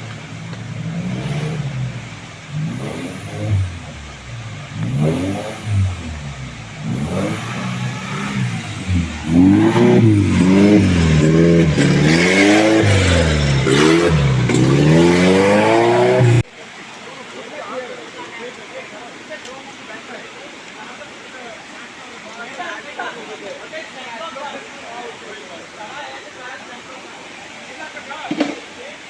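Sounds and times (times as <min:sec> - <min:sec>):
engine revving: 0:00.0 - 0:16.4.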